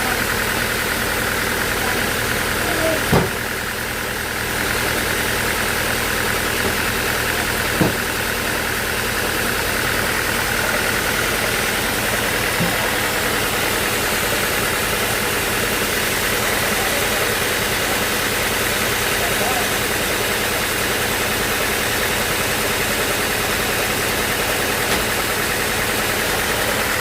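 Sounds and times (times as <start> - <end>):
sawmill machinery hum: 0.0 - 27.0
short knock: 3.1 - 3.4, 7.7 - 8.1.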